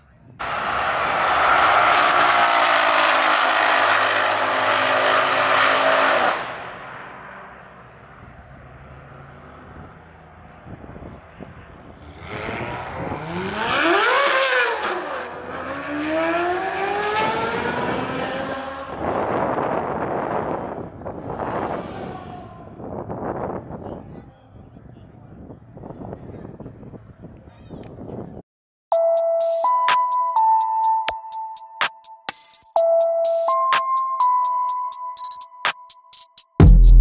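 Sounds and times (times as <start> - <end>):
car engine revving: 0.4 - 19.1
car passing at speed: 0.4 - 22.0
car engine accelerating hard: 0.4 - 22.4.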